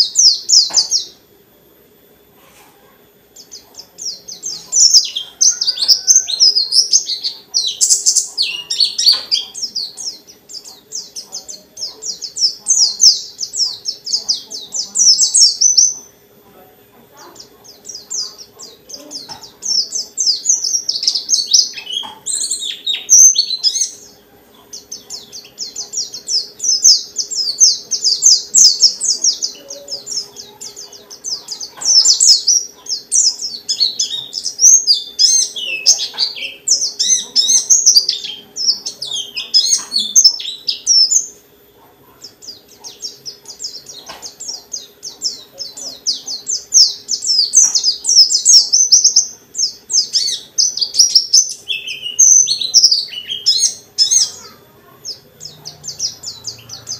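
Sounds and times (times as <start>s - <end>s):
bird twittering song: 0.0s - 1.3s, 3.2s - 16.3s, 16.9s - 56.9s.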